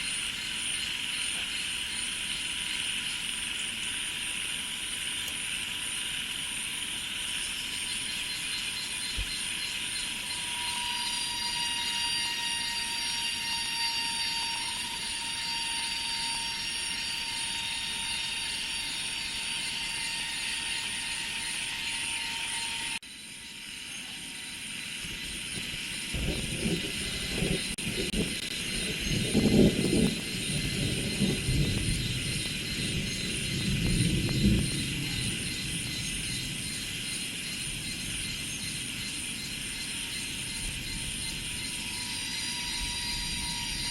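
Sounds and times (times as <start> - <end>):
insects buzzing: 0.0 - 43.9.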